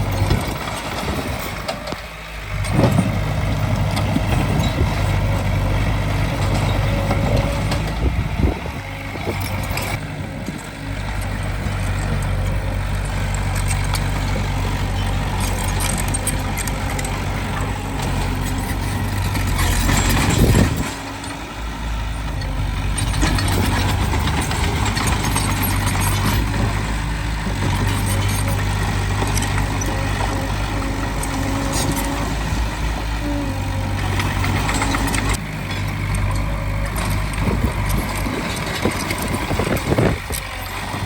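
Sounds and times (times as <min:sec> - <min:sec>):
diesel machinery drone: 0:00.0 - 0:41.0
metal clanks: 0:11.1 - 0:40.9.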